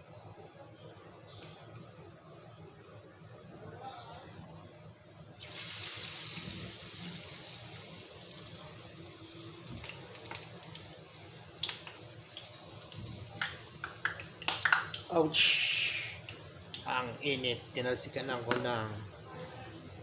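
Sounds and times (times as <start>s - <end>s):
dough sizzling in hot oil: 5.3s - 19.2s.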